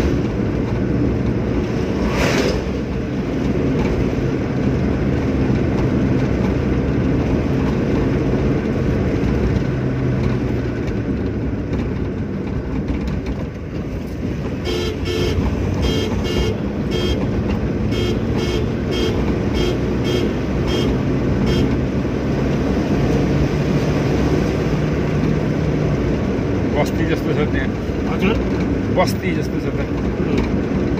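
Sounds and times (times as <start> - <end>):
car engine and road noise: 0.0 - 30.9
vehicle horn short beeps: 14.6 - 17.2, 17.9 - 21.8.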